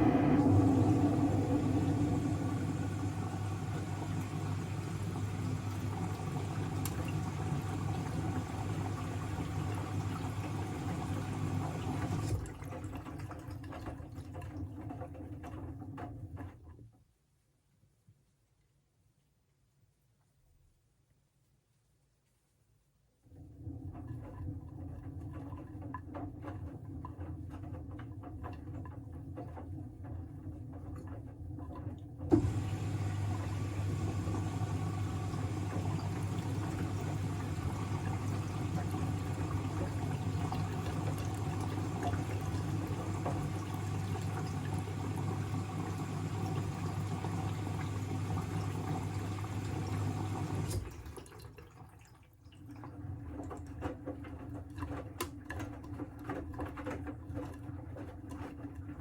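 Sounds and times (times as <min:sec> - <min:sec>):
water rushing with electric hum: 0:00.0 - 0:12.4, 0:32.3 - 0:50.8
washing machine running: 0:00.0 - 0:16.8, 0:23.2 - 0:59.0.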